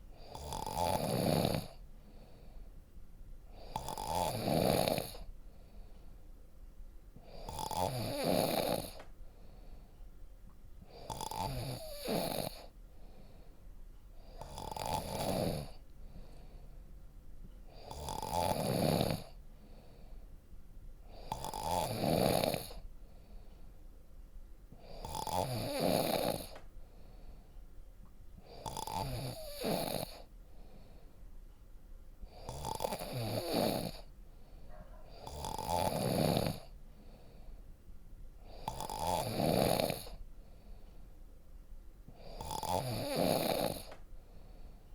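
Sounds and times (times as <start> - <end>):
person snoring deeply: 0.2 - 1.8, 3.6 - 5.3, 7.3 - 9.0, 10.9 - 12.7, 14.4 - 15.8, 17.8 - 19.4, 21.2 - 22.8, 24.8 - 26.6, 28.5 - 30.2, 32.4 - 34.1, 35.1 - 36.7, 38.5 - 40.2, 42.2 - 43.9.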